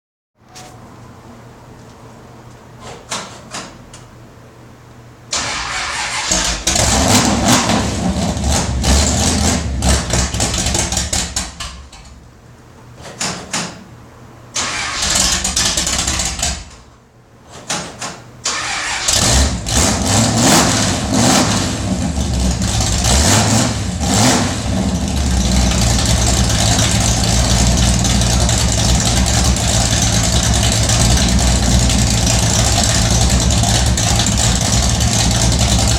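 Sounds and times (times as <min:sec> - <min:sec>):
engine cranking: 0:05.3 - 0:07.0, 0:14.6 - 0:16.8, 0:18.4 - 0:19.9
car engine idling unevenly: 0:24.6 - 0:35.9.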